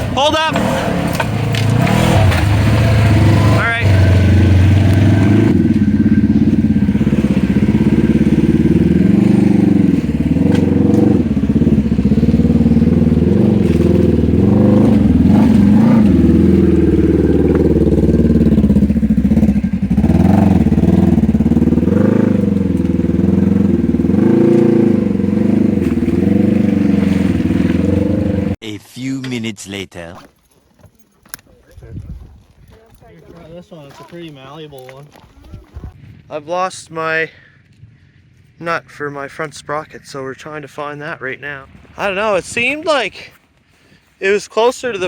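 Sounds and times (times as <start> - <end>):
off-road vehicle engine revving: 0.0 - 28.6.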